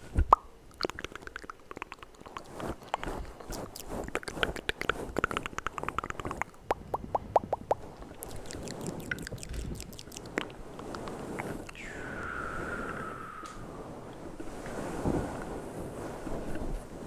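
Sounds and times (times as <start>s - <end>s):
wet mouth clicks and pops: 0.2s - 11.8s.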